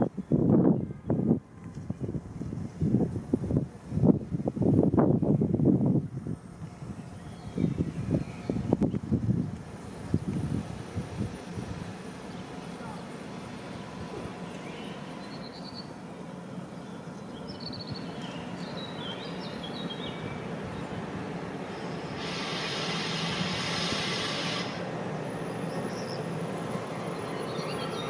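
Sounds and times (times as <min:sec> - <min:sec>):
train rumbling: 0:00.0 - 0:28.0
birds chirping: 0:14.2 - 0:22.2
steady hiss: 0:21.3 - 0:24.9.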